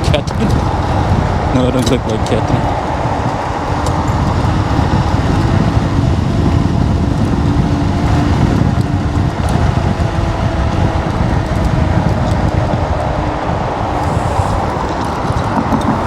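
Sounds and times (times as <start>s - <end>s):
road noise: 0.0s - 16.0s
wind buffeting microphone: 0.0s - 16.0s
faint steady whine: 12.0s - 16.0s.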